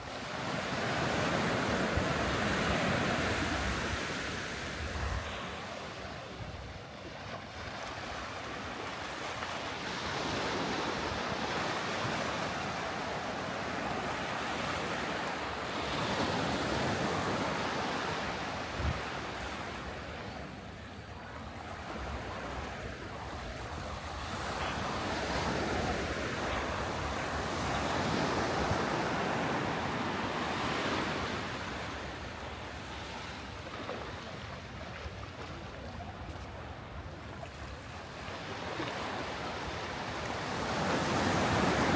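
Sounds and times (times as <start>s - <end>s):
sea waves breaking on beach: 0.0s - 41.9s
wind on microphone: 1.7s - 5.6s, 18.7s - 19.1s.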